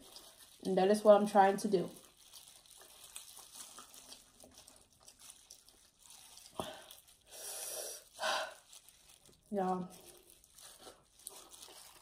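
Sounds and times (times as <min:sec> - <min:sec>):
soft chewing and mouth clicks: 0:01.9 - 0:07.3, 0:08.0 - 0:12.0.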